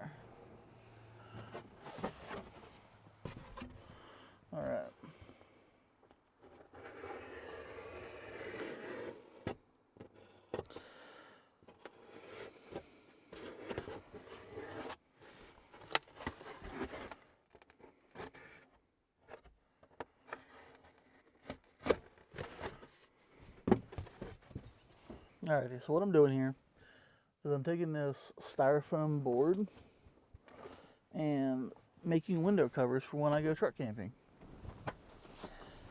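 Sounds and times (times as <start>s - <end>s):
styrofoam scraping and rubbing: 6.5s - 9.5s, 13.4s - 18.7s.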